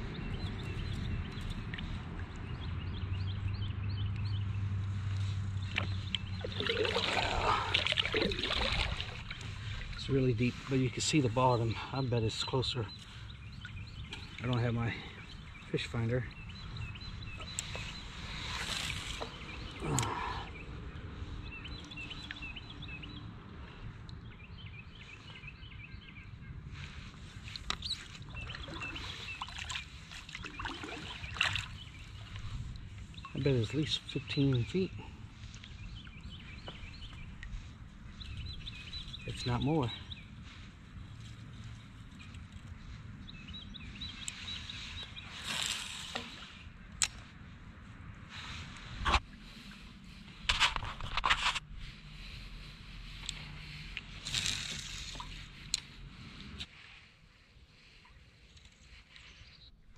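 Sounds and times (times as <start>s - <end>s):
small birds chirping: 0.0s - 50.4s
low outdoor rumble: 51.6s - 57.4s.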